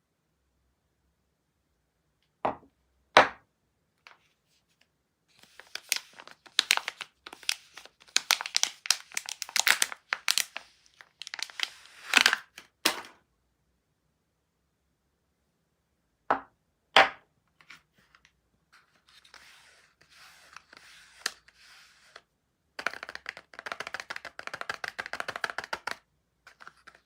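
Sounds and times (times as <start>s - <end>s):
wrapper crinkling and crackling: 5.3s - 12.7s.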